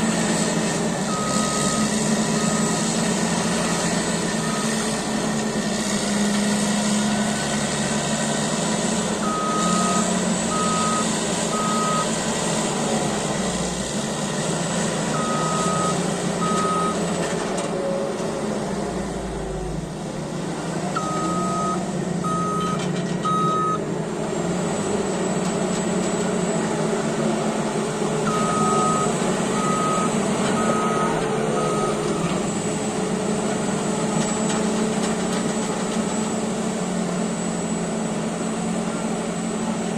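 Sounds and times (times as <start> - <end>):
bulldozer diesel engine running: 0.0 - 39.9
reverse alarm beeping: 9.2 - 12.1, 15.2 - 17.0, 21.0 - 23.8, 28.3 - 32.3.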